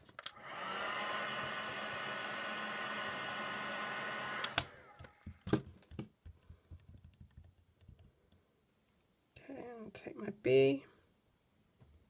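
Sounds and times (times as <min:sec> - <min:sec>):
heat gun fan running: 0:00.2 - 0:05.2.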